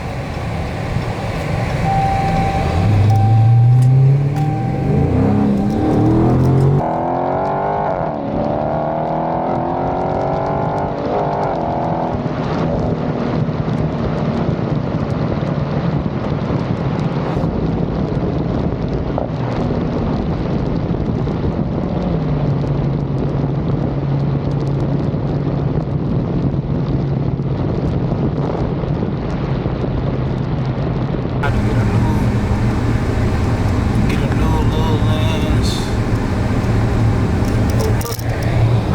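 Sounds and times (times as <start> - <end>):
car engine accelerating: 0.0 - 7.5, 31.4 - 38.9.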